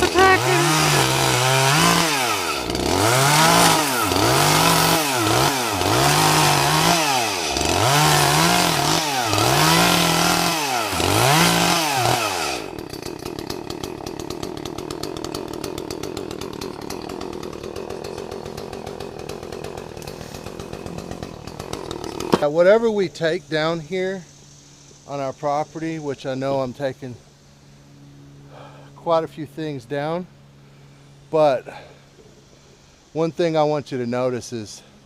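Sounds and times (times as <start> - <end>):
chainsaw engine revving: 0.0 - 22.5.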